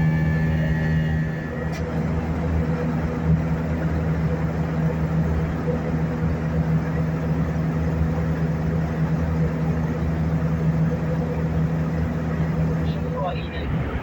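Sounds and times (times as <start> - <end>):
airplane cabin engine drone: 0.0 - 14.0.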